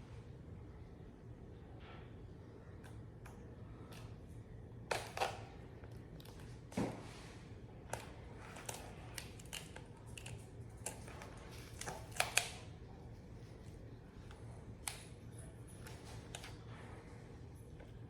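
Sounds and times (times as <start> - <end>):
hands clicking and rustling grip: 7.9 - 12.7.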